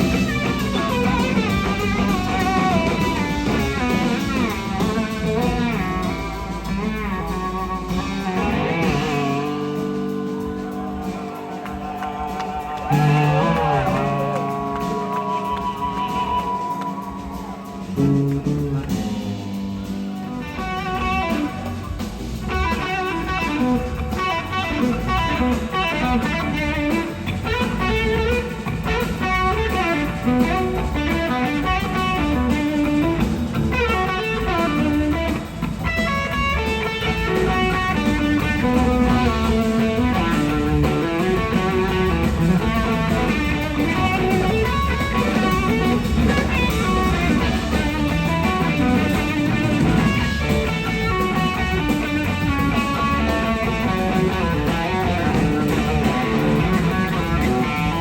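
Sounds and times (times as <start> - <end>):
bass: 0.0 - 58.0
drums: 0.0 - 58.0
electric slide guitar solo: 6.7 - 19.1.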